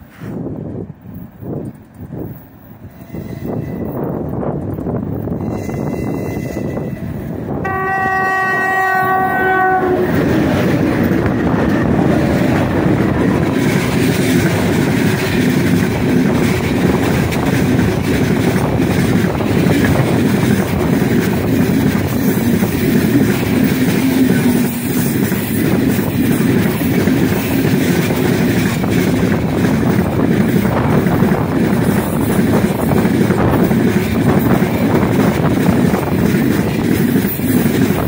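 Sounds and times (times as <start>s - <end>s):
train rumbling past: 0.0s - 38.0s
wheels clattering on rails: 0.7s - 7.3s, 8.4s - 38.0s
locomotive horn: 5.5s - 10.3s.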